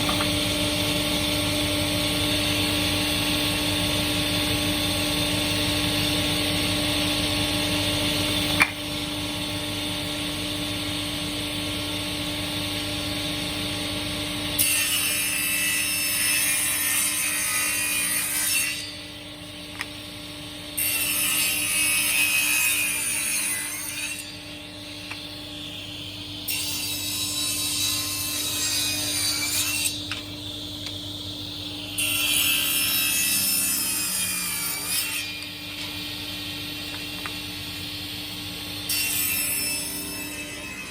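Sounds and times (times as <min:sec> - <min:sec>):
saw cutting wood: 0:20.8 - 0:24.4, 0:26.5 - 0:30.2.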